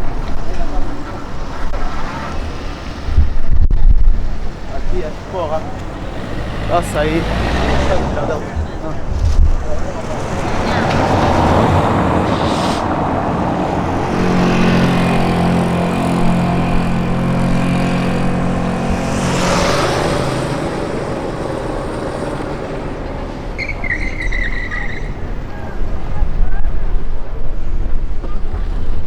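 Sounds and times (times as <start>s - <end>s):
wind on microphone: 0.0s - 23.2s
street noise: 0.0s - 29.0s
vehicle engine running: 0.0s - 29.0s.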